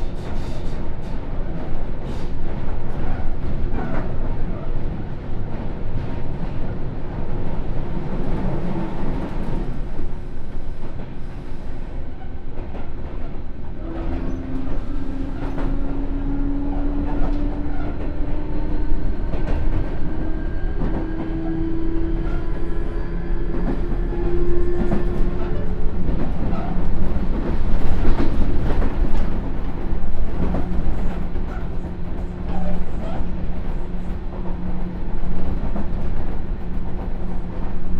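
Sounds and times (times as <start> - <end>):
train wheel and rail noise: 0.0 - 37.9
rail-joint clacks: 12.1 - 21.5, 23.5 - 37.9.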